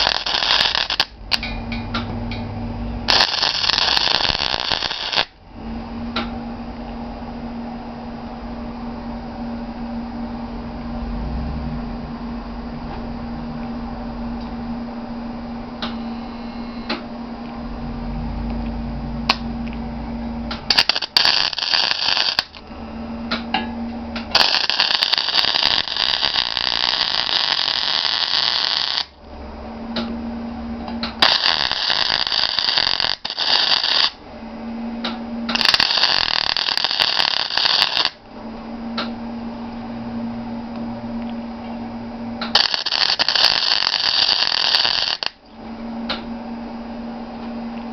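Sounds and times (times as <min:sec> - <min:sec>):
arc welding crackling and hissing: 0:00.0 - 0:05.4, 0:20.4 - 0:22.7, 0:23.3 - 0:29.2, 0:30.8 - 0:34.2, 0:35.0 - 0:38.2, 0:42.4 - 0:45.5
steady low hum: 0:00.0 - 0:47.9.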